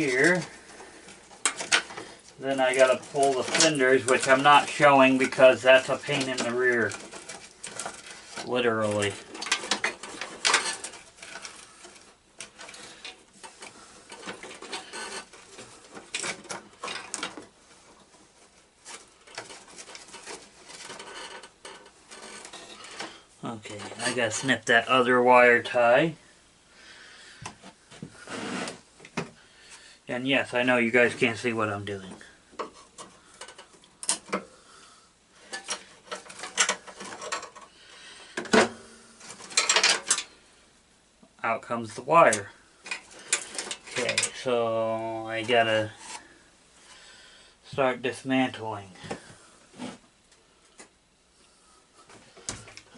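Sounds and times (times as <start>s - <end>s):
hand tools clicking and rattling: 0.0s - 17.5s, 35.5s - 37.7s, 39.3s - 40.3s.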